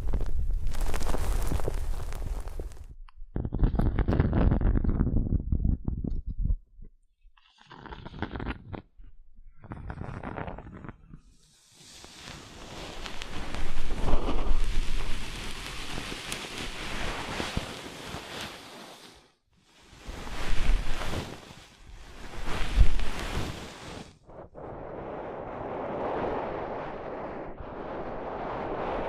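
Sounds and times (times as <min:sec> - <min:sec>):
rushing rustling noise: 0:00.0 - 0:02.9, 0:11.7 - 0:29.0.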